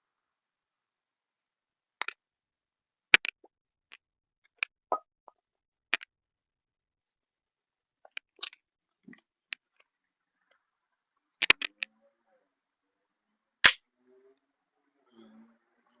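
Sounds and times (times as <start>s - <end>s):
sharp clicks and taps: 3.2s - 3.5s, 8.0s - 9.8s, 11.4s - 11.9s.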